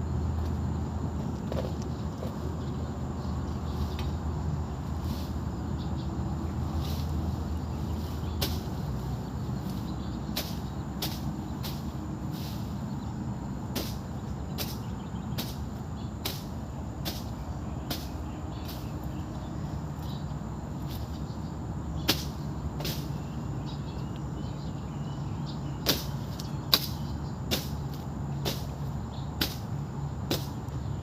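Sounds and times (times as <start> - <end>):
hand tool swishing strokes: 6.7 - 8.9, 9.6 - 12.8, 13.7 - 18.9, 22.1 - 23.2, 25.8 - 28.8, 29.4 - 29.7.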